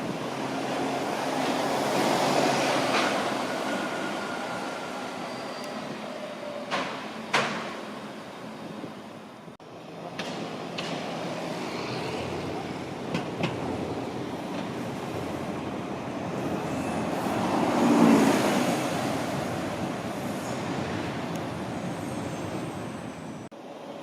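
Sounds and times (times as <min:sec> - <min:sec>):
bus passing: 0:10.4 - 0:23.5.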